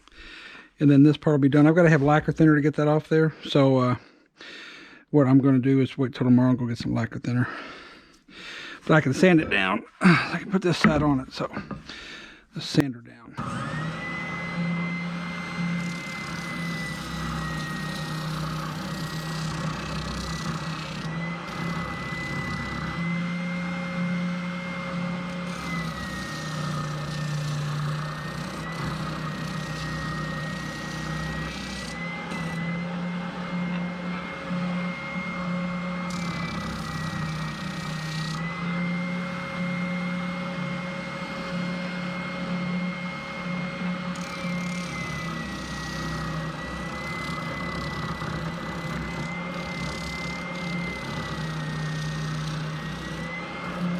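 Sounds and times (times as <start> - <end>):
electric sander on metal: 12.6 - 53.9.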